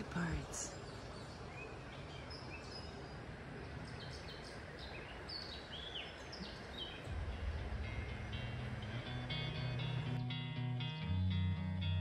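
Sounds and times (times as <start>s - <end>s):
background hiss: 0.0s - 11.9s
songbirds chirping: 0.0s - 12.0s
low hum: 7.0s - 12.0s
music: 7.1s - 12.0s.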